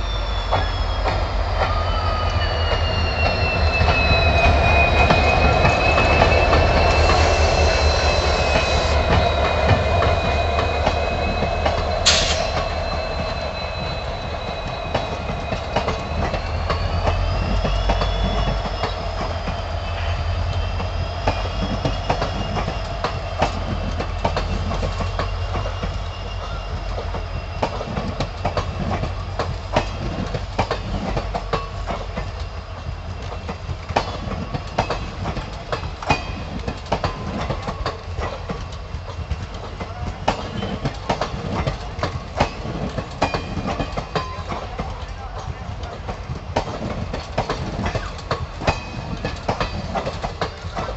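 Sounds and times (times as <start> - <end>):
high wavering squeal: 0.0 - 29.2
train low rumble: 0.0 - 50.9
wheels clicking over rail joints: 20.8 - 50.9.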